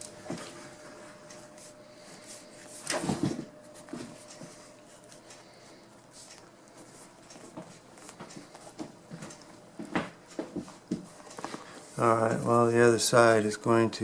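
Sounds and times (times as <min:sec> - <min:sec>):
vinyl material clicking and rustling: 0:06.2 - 0:12.6.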